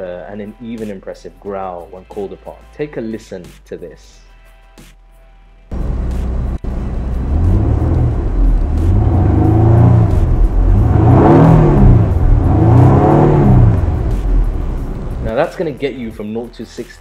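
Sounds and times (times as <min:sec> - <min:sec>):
car engine revving: 0:05.7 - 0:16.2.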